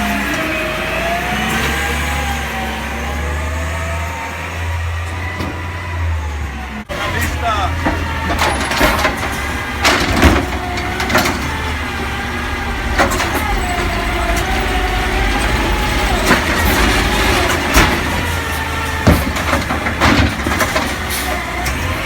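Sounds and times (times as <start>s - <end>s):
garbage truck engine rumble: 0.0s - 22.0s
sharp bangs and clanks: 6.9s - 22.0s.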